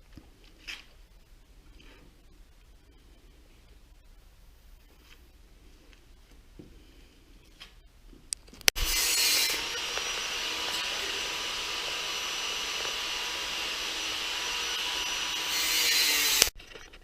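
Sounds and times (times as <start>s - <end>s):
small machine motor whirring: 8.8s - 16.5s.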